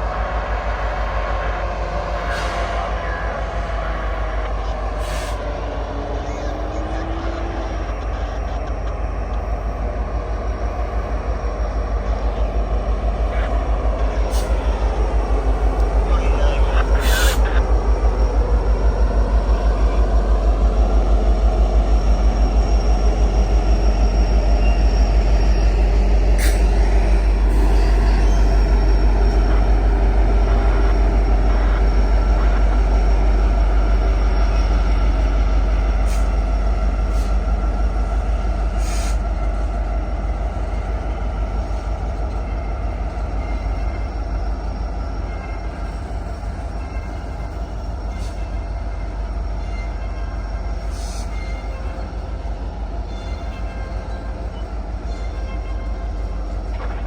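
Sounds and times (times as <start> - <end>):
freight train cars rumbling: 0.0 - 57.0
train cars clanking: 12.0 - 57.0.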